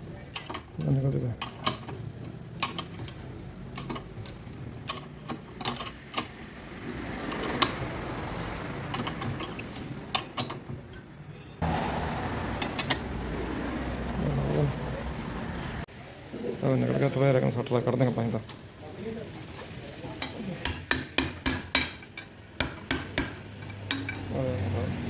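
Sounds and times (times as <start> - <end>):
background noise: 0.0 - 25.0
ratchet wrench clicking: 2.6 - 6.6.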